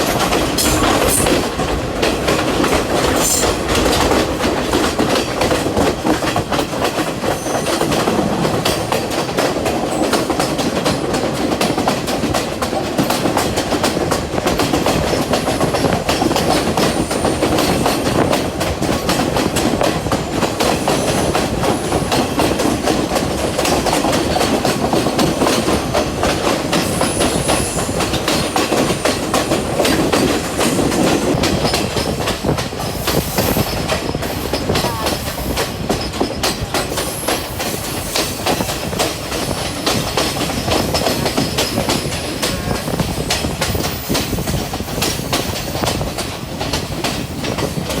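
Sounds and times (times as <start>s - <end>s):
train carriage rumble and rattle: 0.0s - 48.0s.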